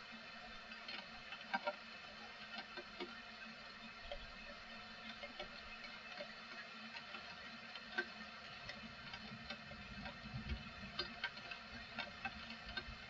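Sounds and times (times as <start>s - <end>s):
rain falling: 7.2s - 13.0s.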